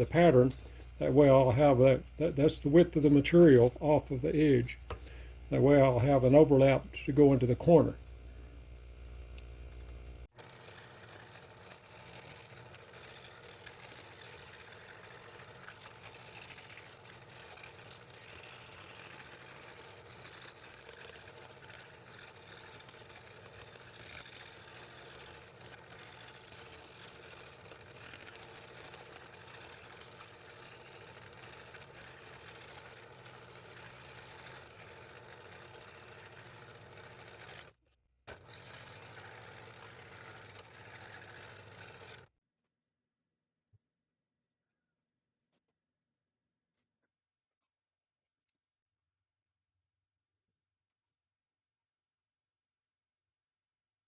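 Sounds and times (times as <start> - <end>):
scroll saw cutting wood: 0.0 - 8.2, 8.9 - 42.3.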